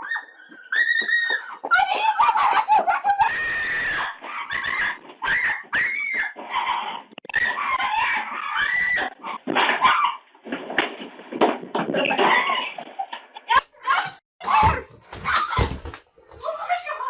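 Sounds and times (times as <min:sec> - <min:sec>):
raccoons squealing and snarling: 0:00.0 - 0:10.3.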